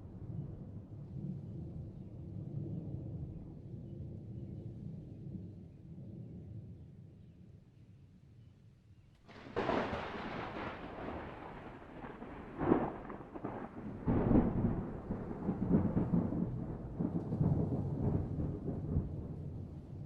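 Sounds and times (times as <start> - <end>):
thunder crack: 9.3 - 19.4
rolling thunder rumble: 9.3 - 20.0.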